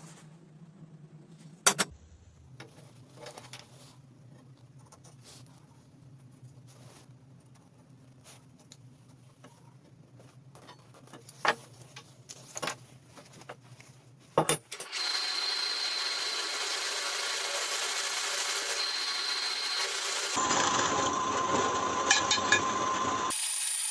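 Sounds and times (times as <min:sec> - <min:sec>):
angle grinder cutting pipe: 0:14.8 - 0:23.9.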